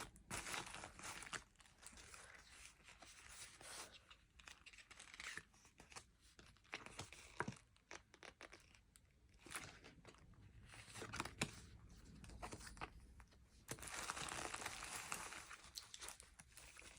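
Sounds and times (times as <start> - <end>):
packaging torn and crinkled: 13.7 - 16.9.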